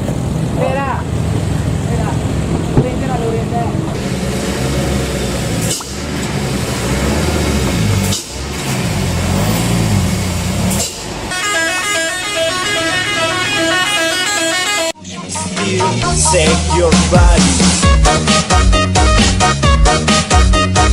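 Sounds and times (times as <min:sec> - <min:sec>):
truck engine rumbling: 0:00.0 - 0:20.9
melodic multi-note horn: 0:11.3 - 0:17.2.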